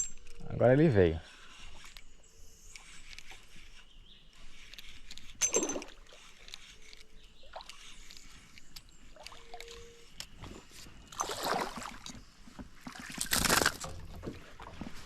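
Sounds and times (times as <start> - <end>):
water splashing around a boat: 10.6 - 15.0.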